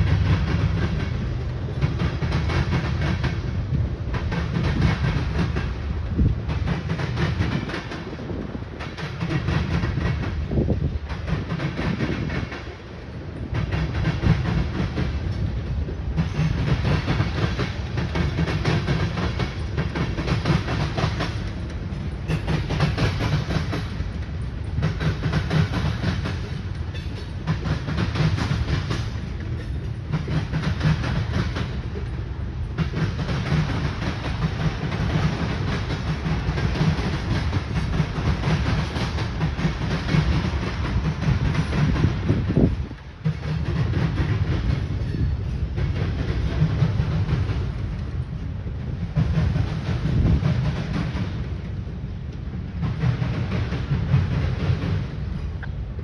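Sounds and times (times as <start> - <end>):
train wheels rumbling and clacking: 0.0 - 56.0.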